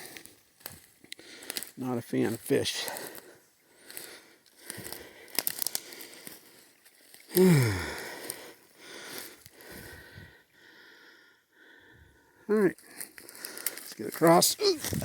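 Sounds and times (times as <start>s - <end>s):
footsteps crunching through leaves: 0.0s - 7.3s
person grunting: 7.4s - 8.0s.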